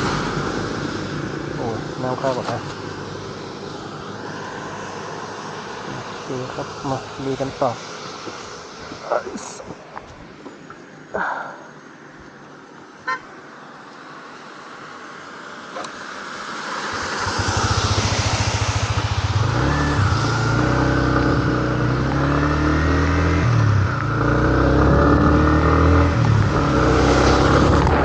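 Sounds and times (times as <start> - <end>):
road noise hiss: 0.0 - 28.0
vehicle engine accelerating: 16.8 - 28.0.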